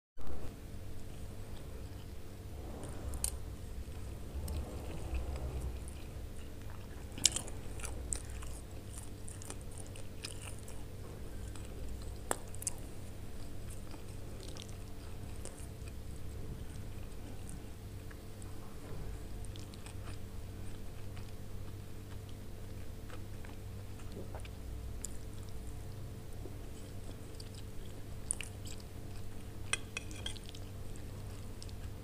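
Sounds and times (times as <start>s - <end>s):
chewing and biting food: 1.5s - 32.0s.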